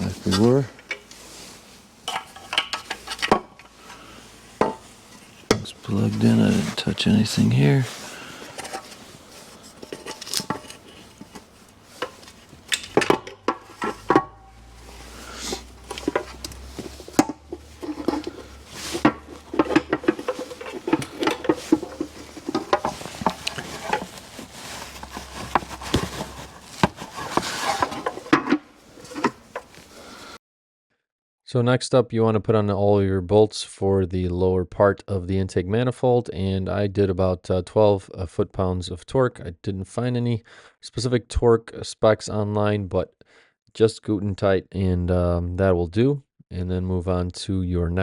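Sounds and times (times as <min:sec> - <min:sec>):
metal tools clinking: 0:09.6 - 0:28.4.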